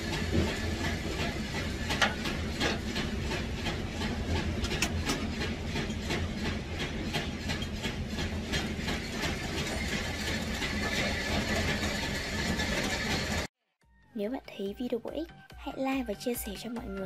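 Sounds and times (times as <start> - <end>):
mechanical clicking and clattering: 0.0 - 13.5.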